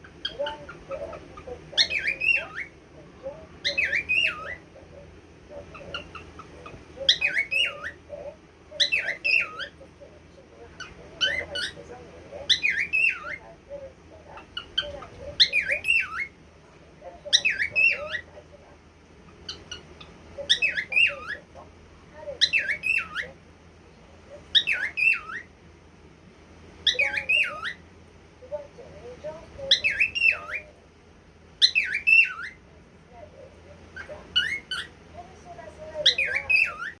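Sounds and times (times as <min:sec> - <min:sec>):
cockatiel whistling call: 0:31.6 - 0:32.6.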